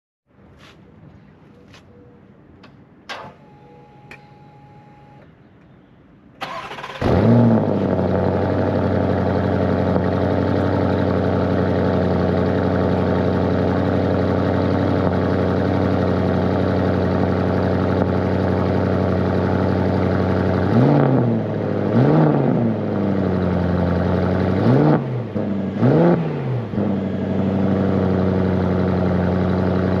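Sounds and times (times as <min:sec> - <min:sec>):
car engine starting and idling: 0:02.6 - 0:05.3, 0:06.4 - 0:30.0
car engine revving: 0:06.4 - 0:30.0.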